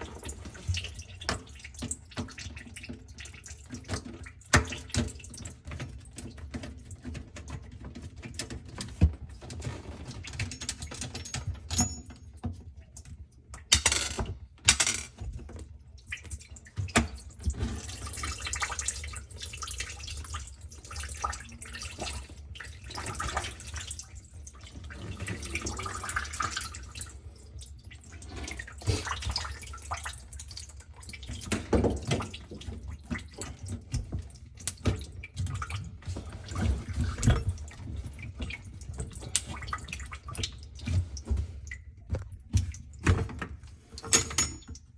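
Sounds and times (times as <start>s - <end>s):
water running in a sink: 0.0s - 44.9s.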